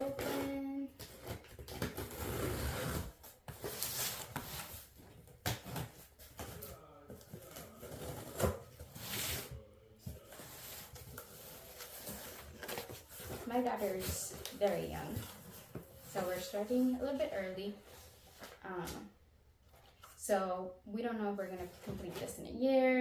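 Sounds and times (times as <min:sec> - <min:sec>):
cardboard rustling and scraping: 0:00.0 - 0:18.6.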